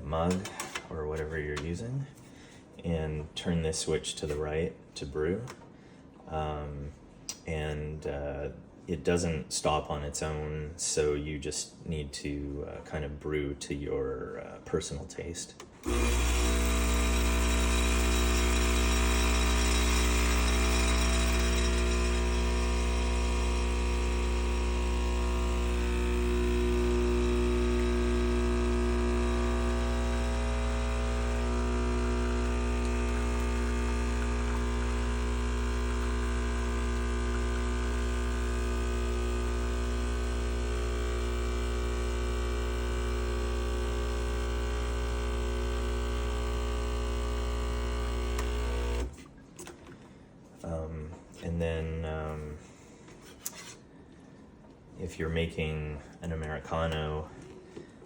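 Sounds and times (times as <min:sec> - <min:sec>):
espresso machine pump humming: 0:15.8 - 0:49.2.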